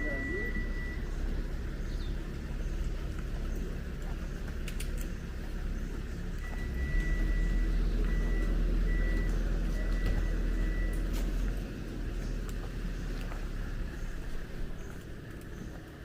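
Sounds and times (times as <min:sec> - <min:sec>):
reversing alarm beeping: 0:00.0 - 0:01.3, 0:06.4 - 0:11.2
bus engine running: 0:00.0 - 0:16.0.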